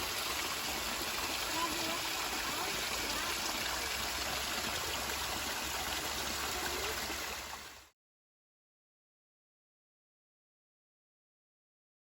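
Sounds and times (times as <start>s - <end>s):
small waterfall splashing: 0.0s - 7.9s.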